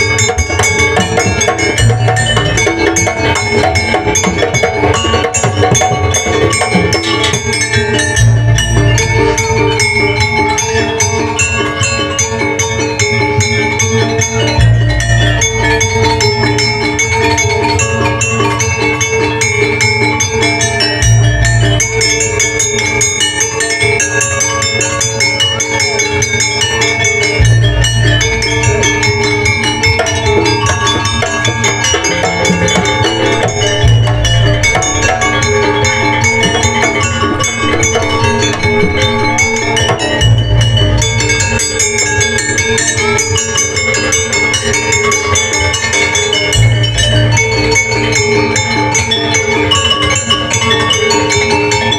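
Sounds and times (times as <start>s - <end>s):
busy drum rhythm: 0.0s - 11.8s, 26.8s - 48.5s
metallophones and gongs ringing: 0.0s - 51.9s.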